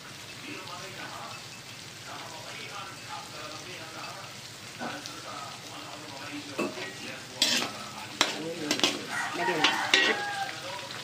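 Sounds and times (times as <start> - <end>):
food sizzling in a pan: 0.0 - 11.0
utensil scraping and knocking pan: 6.6 - 10.2.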